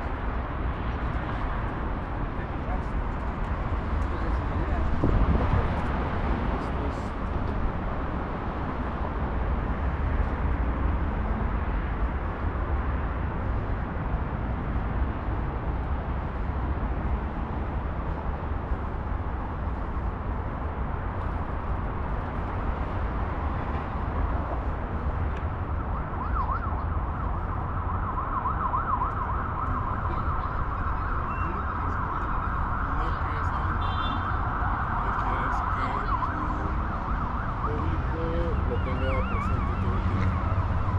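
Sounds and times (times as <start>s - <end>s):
heavy road traffic rumble: 0.0s - 40.9s
emergency siren wailing: 23.5s - 40.9s.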